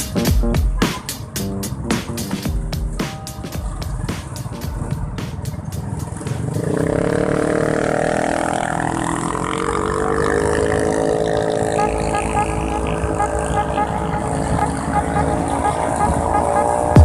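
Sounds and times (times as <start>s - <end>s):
motorcycle engine accelerating: 3.6s - 17.0s.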